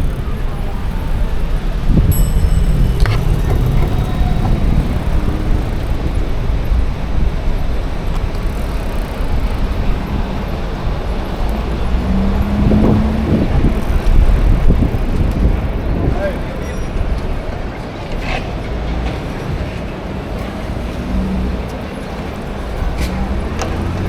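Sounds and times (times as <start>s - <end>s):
city traffic: 0.0s - 24.0s
wind rumble on microphone: 0.0s - 24.0s
short low tone: 2.1s - 6.0s.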